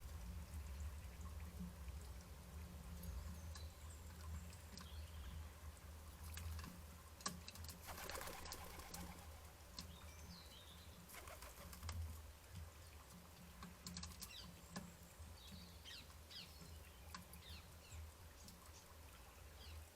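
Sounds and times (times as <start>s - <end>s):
bird wingbeats: 7.8s - 9.5s, 11.1s - 12.0s.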